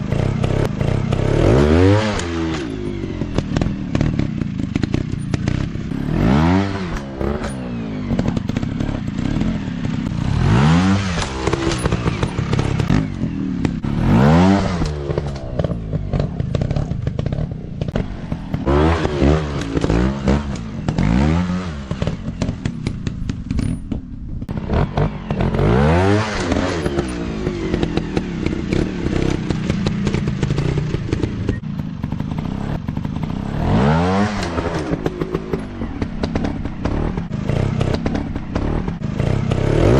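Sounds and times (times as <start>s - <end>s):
dirt bike engine revving: 0.0s - 39.9s
clattering: 22.0s - 24.5s.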